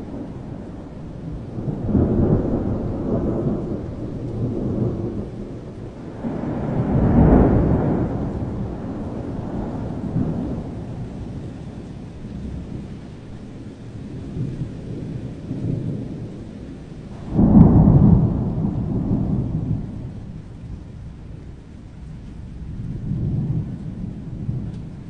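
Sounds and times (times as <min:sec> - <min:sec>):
steady rain: 0:00.0 - 0:25.0
thunder rumbling: 0:00.0 - 0:25.0
loud thunderclap: 0:00.1 - 0:11.4, 0:17.1 - 0:21.4, 0:22.0 - 0:25.0.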